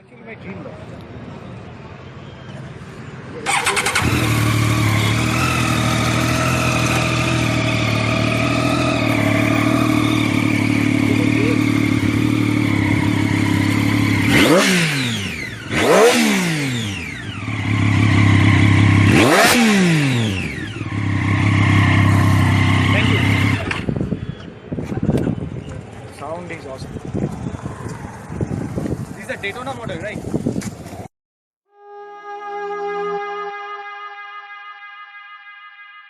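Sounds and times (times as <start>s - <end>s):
motorcycle engine revving: 3.4s - 24.4s
motorcycle engine idling: 3.5s - 14.4s, 17.4s - 19.1s, 20.6s - 24.4s.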